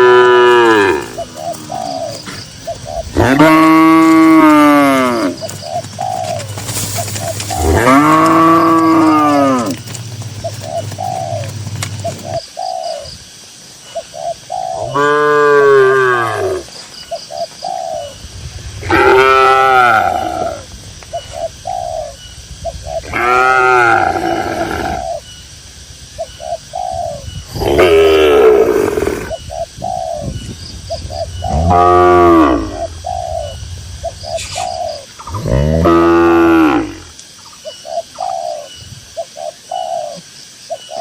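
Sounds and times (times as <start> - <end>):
cow mooing: 0.0 - 2.4, 3.1 - 5.5, 7.5 - 10.6, 31.5 - 32.8
short bird calls: 30.9 - 35.6.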